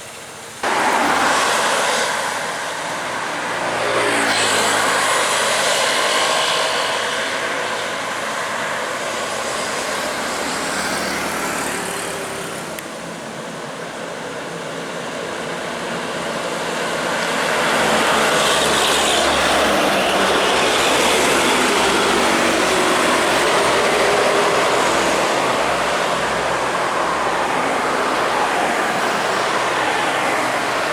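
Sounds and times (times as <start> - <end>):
road traffic passing: 0.0 - 30.9.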